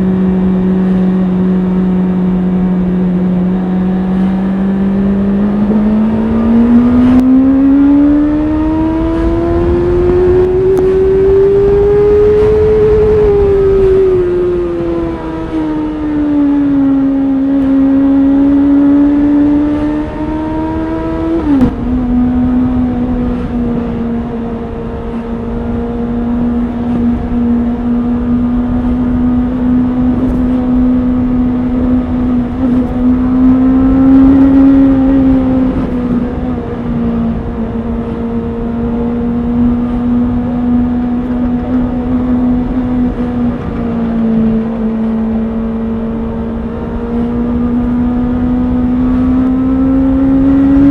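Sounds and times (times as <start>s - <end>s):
motorcycle engine running: 0.0s - 14.7s.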